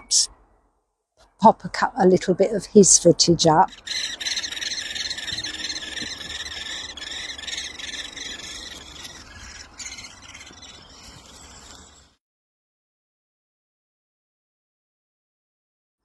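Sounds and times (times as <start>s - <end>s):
woodpecker nestlings chittering: 3.7s - 12.1s.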